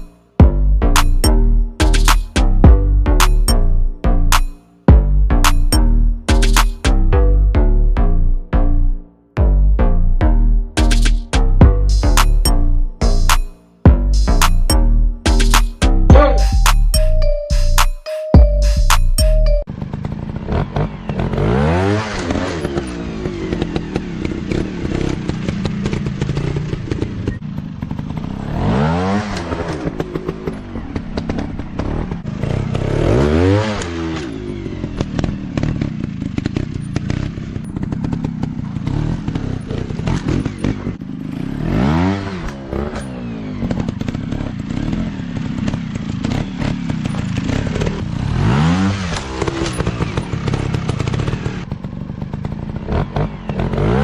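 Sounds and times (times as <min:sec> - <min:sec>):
dirt bike engines revving: 0:19.8 - 0:54.0.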